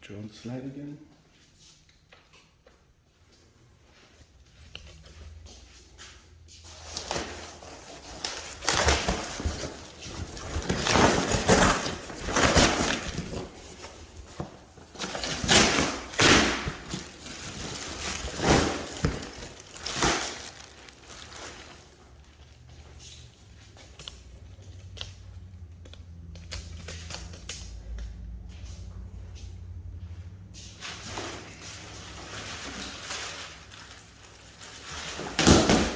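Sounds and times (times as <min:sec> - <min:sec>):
packaging rustling: 0:06.7 - 0:23.0, 0:31.2 - 0:35.9.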